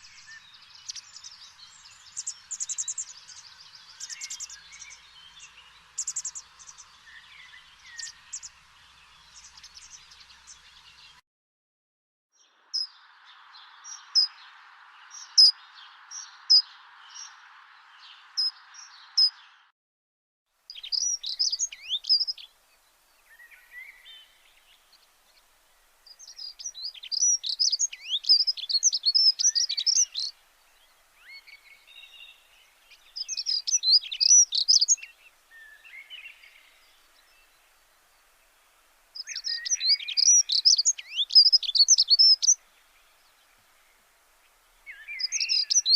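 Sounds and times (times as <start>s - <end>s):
steady hiss: 0.0s - 11.1s, 20.6s - 45.9s
birds chirping and twittering: 0.0s - 11.2s, 12.4s - 19.7s, 20.7s - 45.9s.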